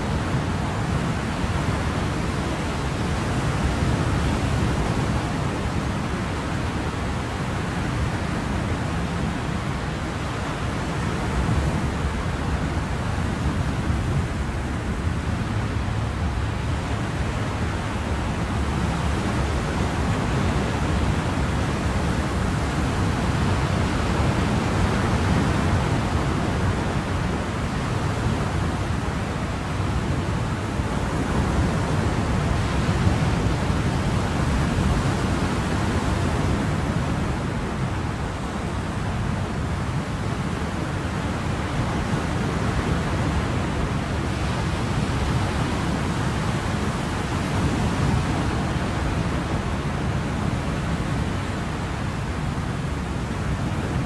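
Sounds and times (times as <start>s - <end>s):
ocean waves: 0.0s - 54.0s.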